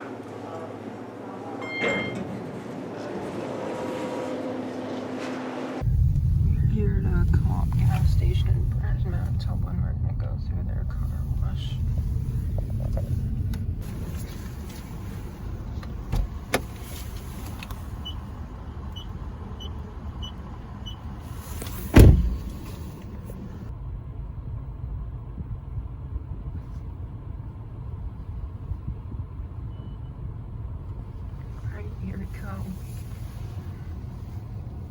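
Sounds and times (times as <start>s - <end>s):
short electronic beeps: 1.6s - 2.3s
car engine idling: 5.8s - 34.9s
loud thump: 21.7s - 22.7s.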